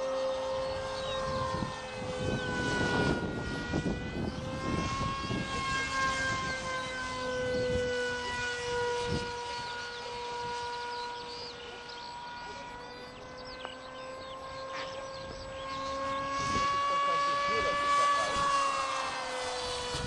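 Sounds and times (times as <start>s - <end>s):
model jet motor whining: 0.0s - 20.0s
rushing wind noise: 1.1s - 6.7s, 19.6s - 20.0s.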